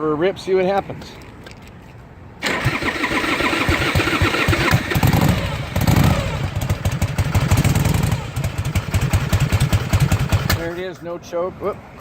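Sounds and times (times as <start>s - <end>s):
motorcycle engine starting and running: 2.4s - 11.0s.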